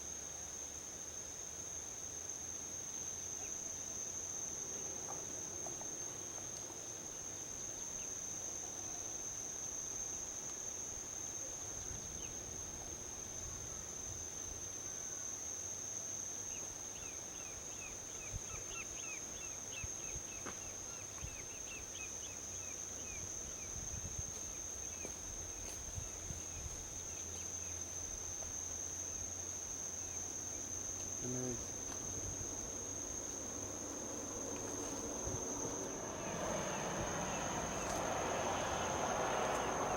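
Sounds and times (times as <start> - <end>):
crickets trilling: 0.0 - 39.9
distant highway traffic rumble: 31.0 - 39.9.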